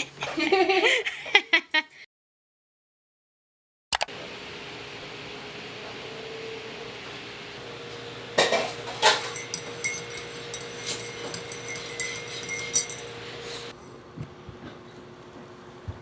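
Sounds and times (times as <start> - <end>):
dishes and cutlery clinking: 7.8 - 13.7.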